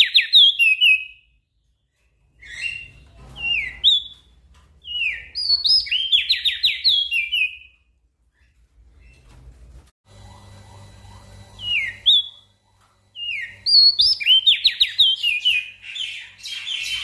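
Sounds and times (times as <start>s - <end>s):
bird whistling song: 0.0s - 1.4s, 2.4s - 7.8s, 11.6s - 12.5s, 13.2s - 17.0s.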